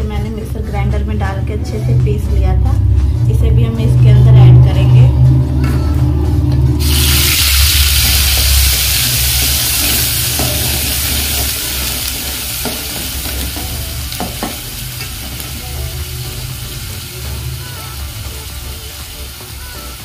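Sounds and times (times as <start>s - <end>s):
paste sizzling in oil: 6.8s - 14.0s.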